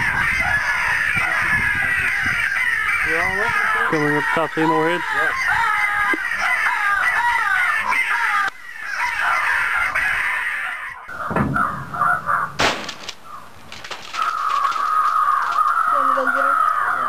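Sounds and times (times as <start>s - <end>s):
crows cawing: 0.0s - 17.0s
sharp crack: 11.2s - 15.9s.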